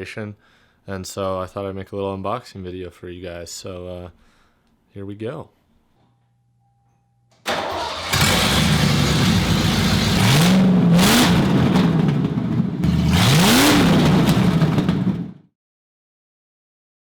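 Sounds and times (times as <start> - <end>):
car engine starting and revving: 7.5 - 15.4.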